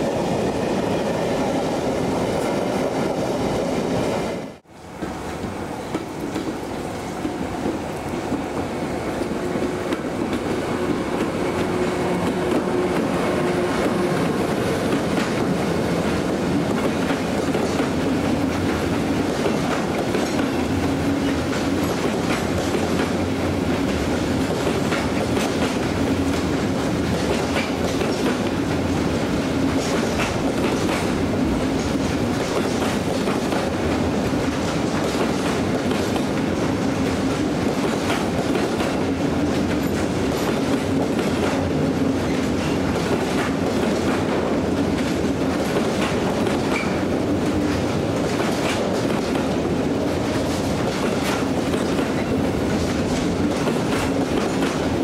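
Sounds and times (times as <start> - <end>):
locomotive hum: 0.0 - 37.6
freight train rumbling past: 0.0 - 55.0
wheels clicking over rail joints: 13.8 - 28.9, 29.6 - 55.0.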